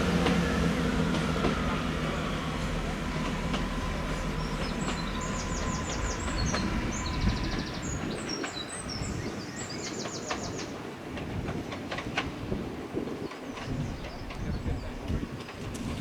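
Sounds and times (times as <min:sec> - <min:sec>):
train rumbling by: 0:00.0 - 0:16.0
songbird chirps and trills: 0:03.1 - 0:10.8.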